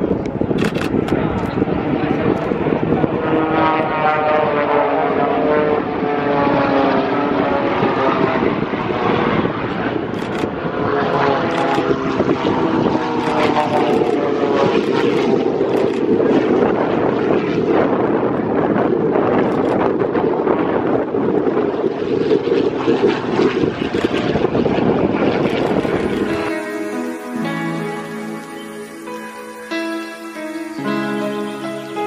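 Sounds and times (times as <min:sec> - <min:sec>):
propeller airplane flying past: 0:00.9 - 0:17.9, 0:21.5 - 0:28.2.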